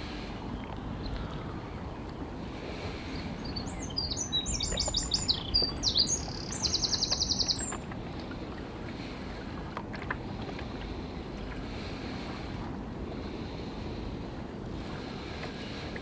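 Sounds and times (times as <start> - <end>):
songbird singing: 0.4 - 7.9.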